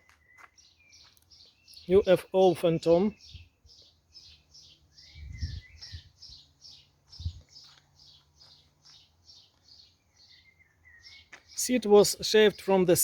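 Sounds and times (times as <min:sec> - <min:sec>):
small bird chirping: 0:00.0 - 0:11.8
dull low thumps: 0:05.2 - 0:06.1.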